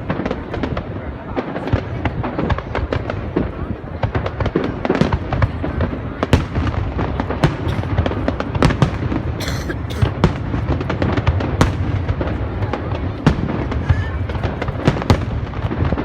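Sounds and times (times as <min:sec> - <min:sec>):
fireworks bangs and cracks: 0:00.0 - 0:16.0.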